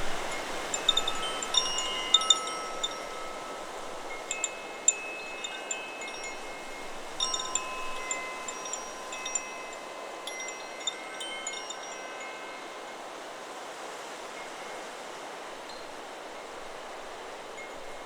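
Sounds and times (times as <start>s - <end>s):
wind hiss: 0.0s - 18.0s
wind chime ringing: 0.1s - 13.2s.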